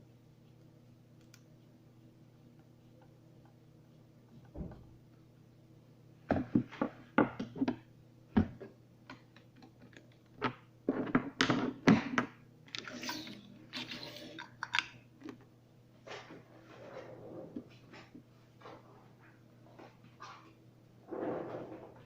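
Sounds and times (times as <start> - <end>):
faint steady hum: 0.0 - 22.0
tools and parts clattering: 12.7 - 14.9.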